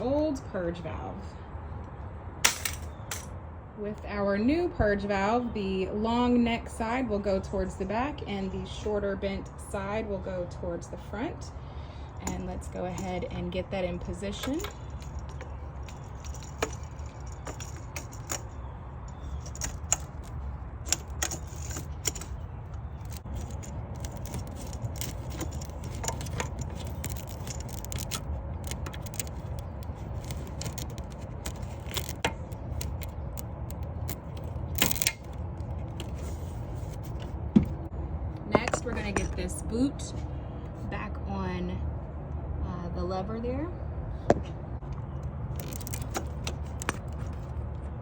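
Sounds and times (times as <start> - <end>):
plastic clicks and rattles: 14.4 - 37.3, 45.6 - 47.5.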